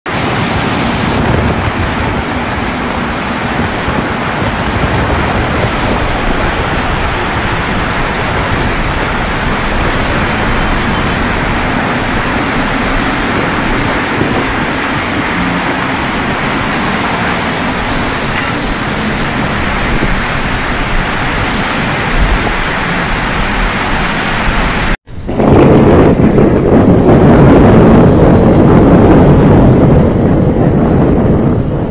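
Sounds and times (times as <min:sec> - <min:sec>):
heavy rain hiss: 0:00.1 - 0:25.0.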